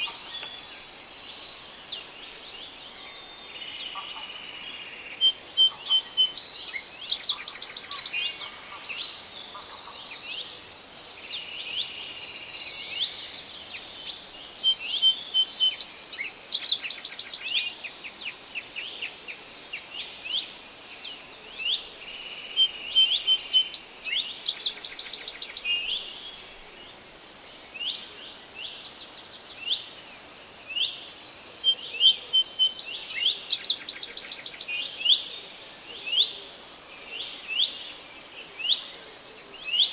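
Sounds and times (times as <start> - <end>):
birds singing: 0.0 - 27.0
faint forest background hiss: 0.0 - 39.9.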